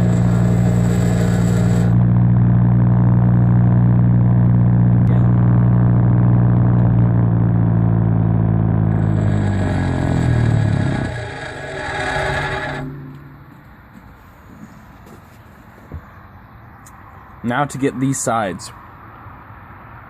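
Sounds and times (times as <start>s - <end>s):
bench grinder motor humming: 0.0s - 13.3s
grinder wheel spinning down: 0.0s - 13.4s.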